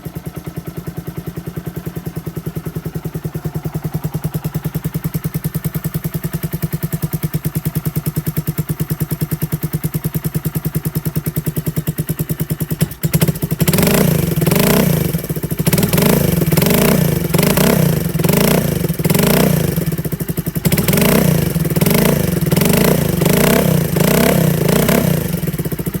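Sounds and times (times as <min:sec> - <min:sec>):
motorcycle engine idling: 0:00.0 - 0:26.0
engine revving: 0:12.8 - 0:26.0.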